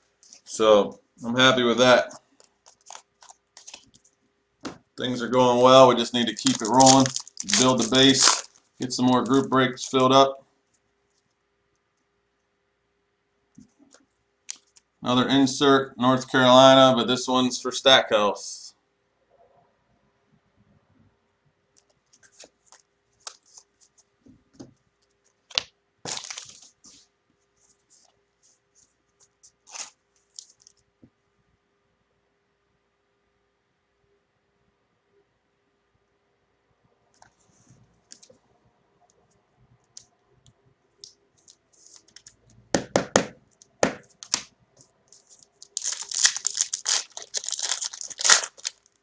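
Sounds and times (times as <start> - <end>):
plastic packaging crinkling: 2.0 - 4.2, 5.8 - 10.1, 14.5 - 14.9, 22.1 - 24.0, 25.0 - 27.0, 28.8 - 30.8, 41.0 - 42.6, 43.5 - 49.0.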